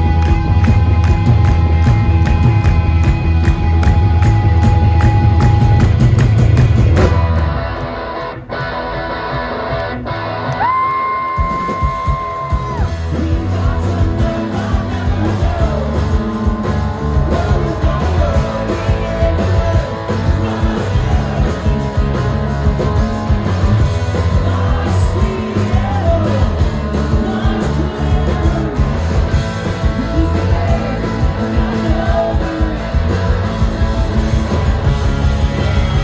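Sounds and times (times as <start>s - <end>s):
live rock band playing: 0.0s - 36.0s
sung lead vocals: 10.6s - 36.0s.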